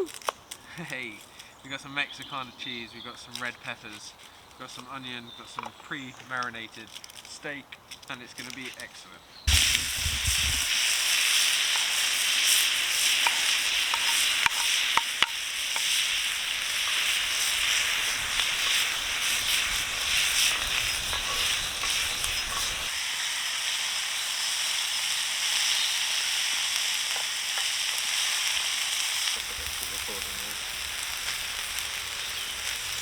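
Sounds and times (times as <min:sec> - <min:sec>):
sharp pops: 0:09.5 - 0:23.0
food sizzling on griddle: 0:09.5 - 0:33.0.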